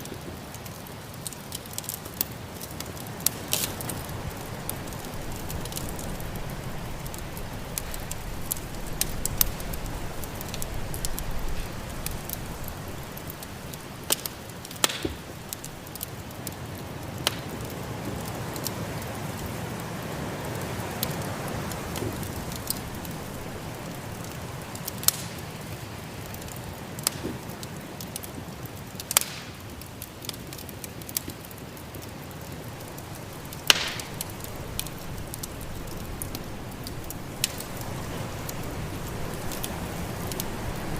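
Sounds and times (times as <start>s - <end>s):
wood fire crackling: 0.0s - 40.9s
snowstorm wind rushing: 3.1s - 14.5s, 17.8s - 24.8s, 32.7s - 40.9s.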